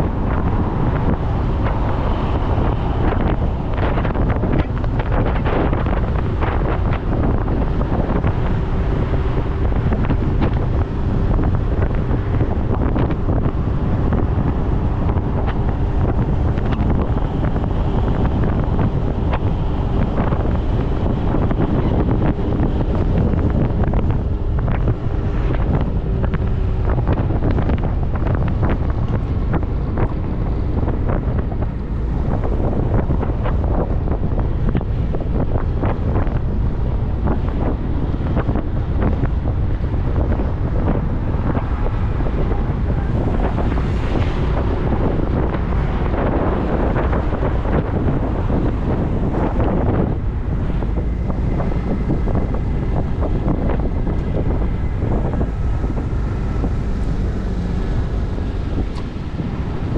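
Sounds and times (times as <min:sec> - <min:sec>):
motorcycle road noise: 0:00.0 - 0:59.9
wind buffeting microphone: 0:00.0 - 0:59.9.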